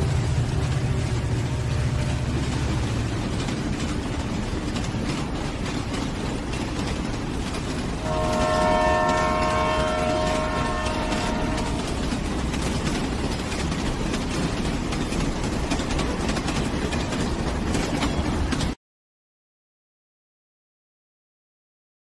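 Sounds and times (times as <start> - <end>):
train wheels clattering on rails: 0.0 - 18.8
train horn chord: 8.0 - 12.1.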